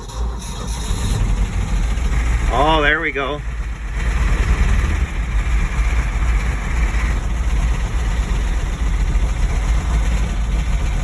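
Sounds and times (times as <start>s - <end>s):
truck engine running roughly: 0.0s - 11.0s.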